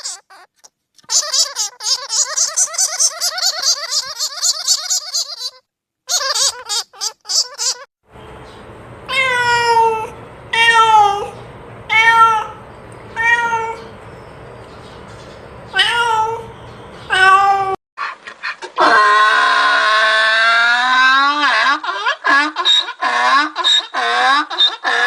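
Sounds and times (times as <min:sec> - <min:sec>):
animal calling: 0:01.1 - 0:07.9.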